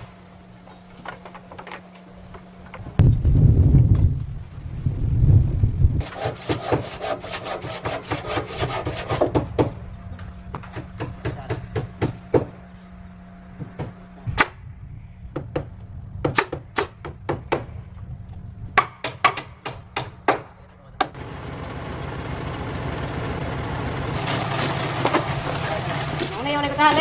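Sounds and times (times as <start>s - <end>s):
steady low hum: 9.0s - 18.8s.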